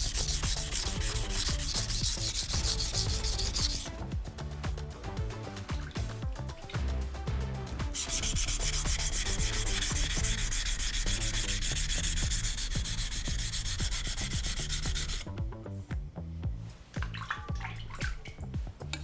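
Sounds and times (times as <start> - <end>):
knife scraping on whetstone: 0.0 - 4.0, 7.9 - 15.2.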